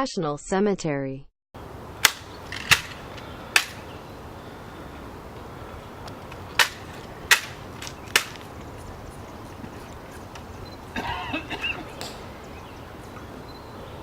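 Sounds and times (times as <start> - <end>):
steady background hiss: 1.6 - 14.0
sharp clicks: 2.0 - 3.9, 6.0 - 8.8.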